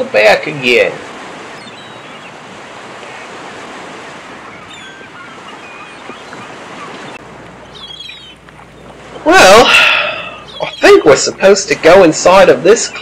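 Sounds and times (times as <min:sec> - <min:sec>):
ocean waves washing on beach: 0:00.0 - 0:13.0
faint high bird calls: 0:01.4 - 0:11.4, 0:12.7 - 0:13.0.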